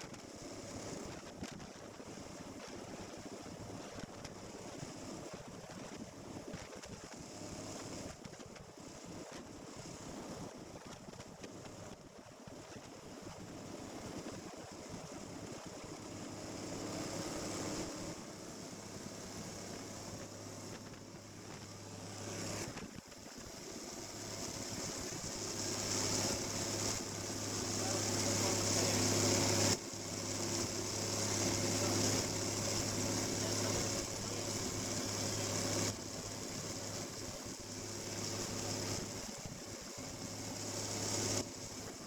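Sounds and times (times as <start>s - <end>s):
snowmobile engine running: 23.4s - 42.0s.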